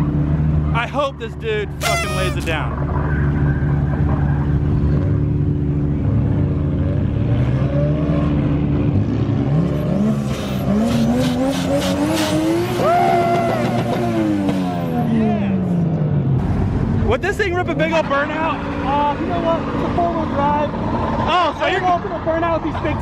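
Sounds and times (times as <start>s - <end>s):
tyre squeal: 1.8s - 2.7s
truck engine revving: 5.9s - 15.1s.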